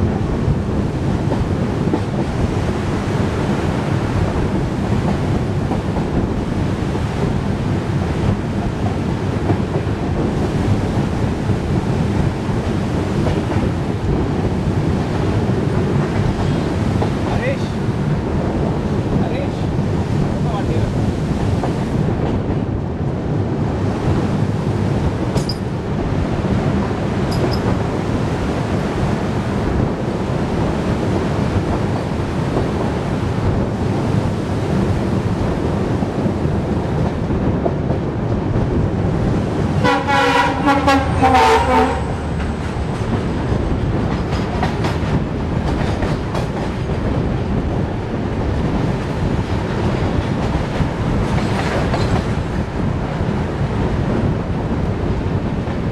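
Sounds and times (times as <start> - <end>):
train wheels rumbling on rail: 0.0 - 55.9
wind: 0.0 - 55.9
locomotive horn: 39.8 - 42.3.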